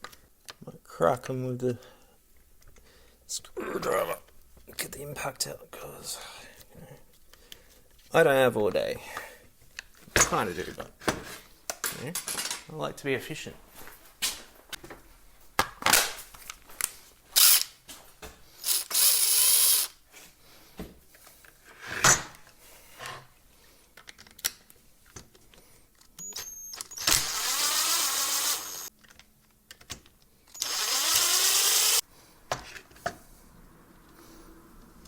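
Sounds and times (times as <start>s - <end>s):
tool and parts clicking: 16.8s - 17.7s, 18.6s - 20.0s, 26.0s - 32.0s
impact driver bursts: 18.6s - 19.9s, 26.4s - 28.9s, 30.6s - 32.0s.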